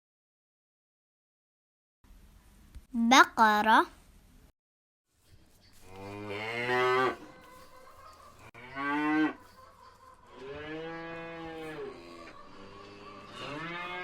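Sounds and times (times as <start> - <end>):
cow mooing: 5.8 - 7.4, 8.4 - 9.5, 10.3 - 14.0.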